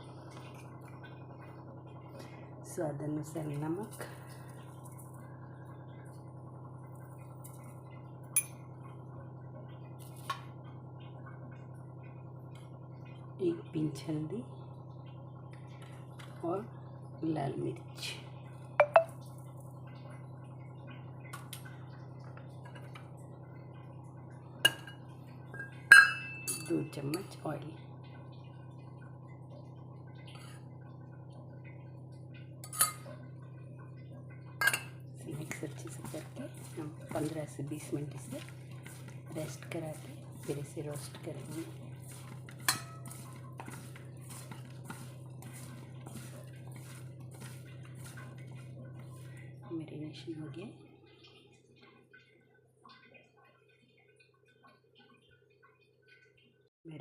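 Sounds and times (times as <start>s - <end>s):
steady low hum: 0.0s - 56.1s
metal spoon clinking against bowl: 18.8s - 19.2s, 25.6s - 27.2s, 32.6s - 33.1s, 34.6s - 35.0s, 42.1s - 45.0s.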